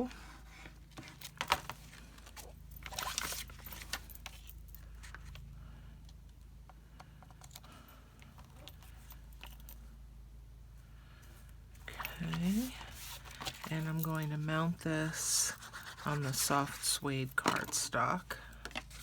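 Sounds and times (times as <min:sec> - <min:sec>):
steady low hum: 0:01.9 - 0:19.0
scratchy rustling of card: 0:12.0 - 0:17.0.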